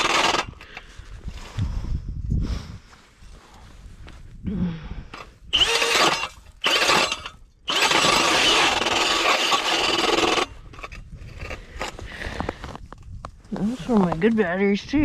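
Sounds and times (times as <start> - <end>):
cordless drill motor whir: 0.0 - 0.8, 5.5 - 11.5
ice auger grinding ice: 0.0 - 0.8, 5.5 - 12.1.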